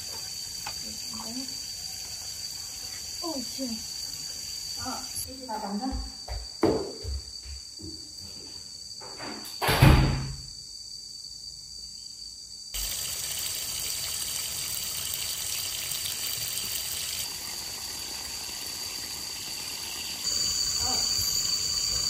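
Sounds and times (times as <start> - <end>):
insects chirring: 0.0 - 22.0
water pouring and splashing on tiles: 12.8 - 20.4.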